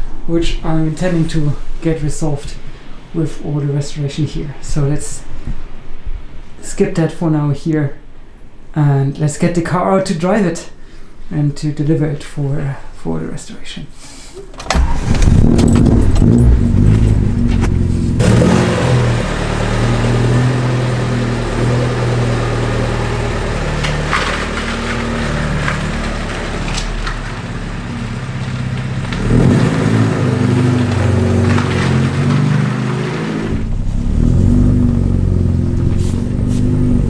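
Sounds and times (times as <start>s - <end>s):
car engine revving: 14.6s - 37.0s.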